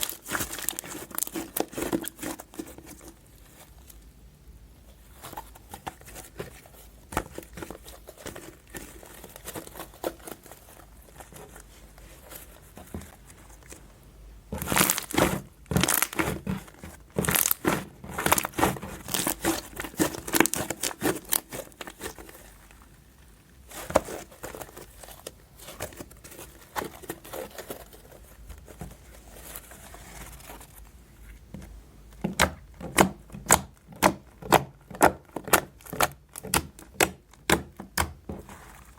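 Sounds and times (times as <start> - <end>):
slime squished by hand: 14.6 - 22.9.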